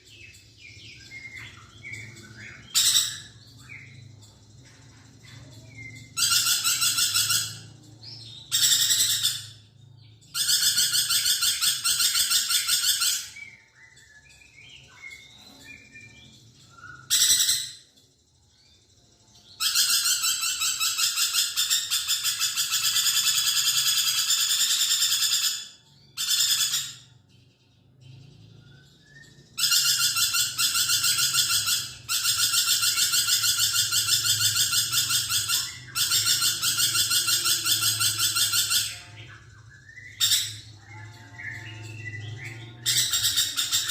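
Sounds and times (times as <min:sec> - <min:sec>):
soft chirps: 0:00.0 - 0:12.8
lorikeet buzzing trill: 0:01.0 - 0:14.0, 0:14.6 - 0:17.9, 0:19.5 - 0:27.1, 0:28.6 - 0:43.9.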